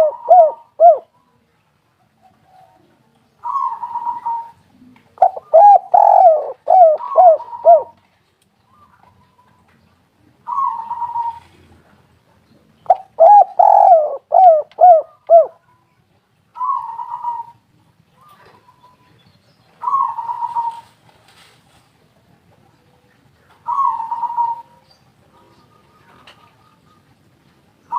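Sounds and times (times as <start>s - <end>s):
doves cooing: 0.0s - 1.1s, 2.2s - 8.0s, 10.4s - 12.0s, 12.8s - 15.6s, 16.6s - 19.0s, 19.8s - 21.0s, 22.8s - 27.9s.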